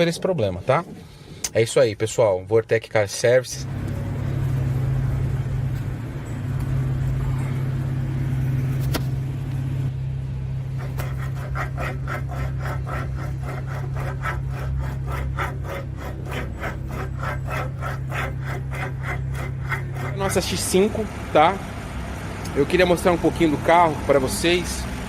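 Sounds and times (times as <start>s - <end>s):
steady low hum: 3.6s - 24.3s
rasping scraping strokes: 10.7s - 21.6s.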